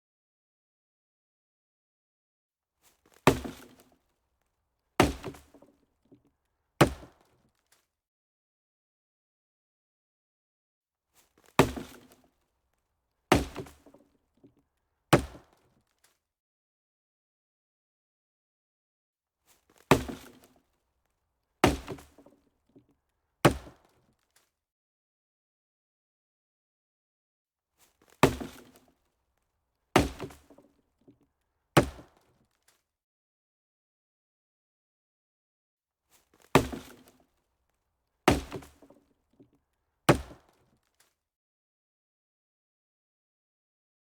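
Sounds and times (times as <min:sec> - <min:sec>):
sharp chopping knocks: 0:03.3 - 0:03.8, 0:05.0 - 0:05.6, 0:06.8 - 0:07.2, 0:11.6 - 0:12.1, 0:13.3 - 0:13.9, 0:15.2 - 0:15.5, 0:19.9 - 0:20.4, 0:21.6 - 0:22.2, 0:23.5 - 0:23.8, 0:28.2 - 0:28.8, 0:30.0 - 0:30.6, 0:31.8 - 0:32.2, 0:36.6 - 0:37.1, 0:38.3 - 0:39.0, 0:40.1 - 0:40.5.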